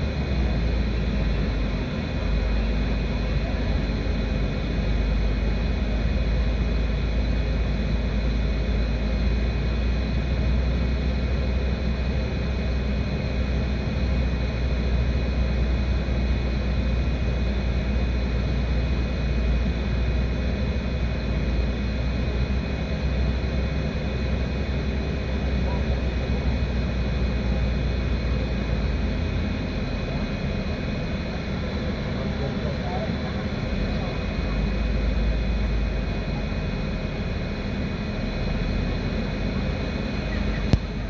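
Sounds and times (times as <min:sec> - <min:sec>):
steady low rumble: 0:26.3 - 0:41.0.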